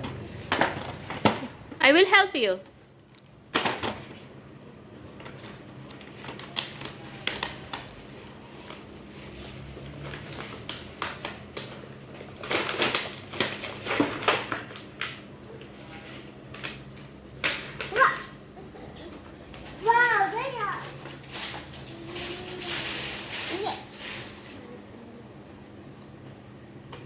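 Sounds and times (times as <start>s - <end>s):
plastic packaging crinkling: 5.3s - 14.9s.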